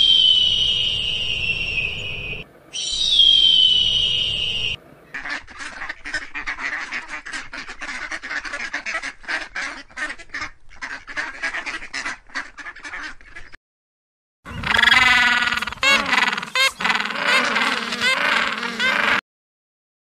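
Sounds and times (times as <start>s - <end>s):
duck quacking: 5.1s - 13.6s, 14.6s - 19.2s
penguin call: 14.5s - 19.2s.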